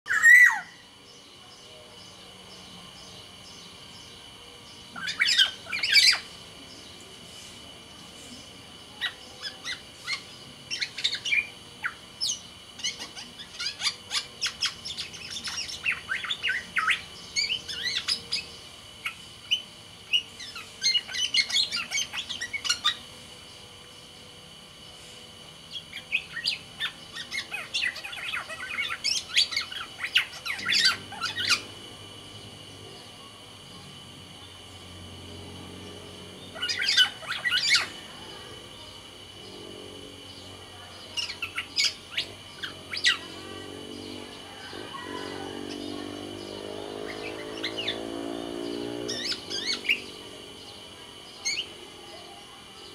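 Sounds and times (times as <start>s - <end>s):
bird chattering calls: 4.9s - 6.4s, 25.7s - 32.0s, 36.4s - 39.6s, 40.2s - 52.2s.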